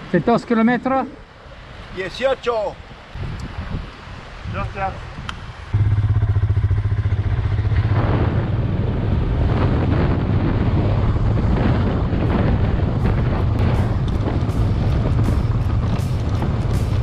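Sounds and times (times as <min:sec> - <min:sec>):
wind and road noise: 0:00.0 - 0:17.0
motorcycle engine running: 0:05.8 - 0:10.0, 0:12.3 - 0:17.0.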